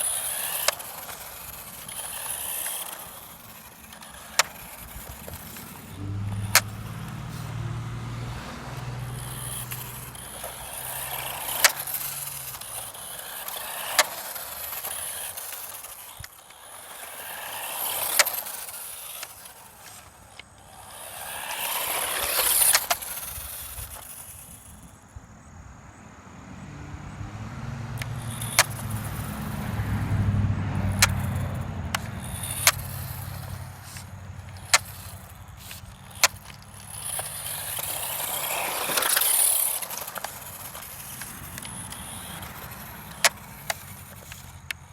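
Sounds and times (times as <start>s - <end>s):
sharp clicks: 0.0s - 7.6s, 28.0s - 29.5s, 30.8s - 44.9s
electric motor whining: 0.0s - 25.0s, 27.5s - 44.9s.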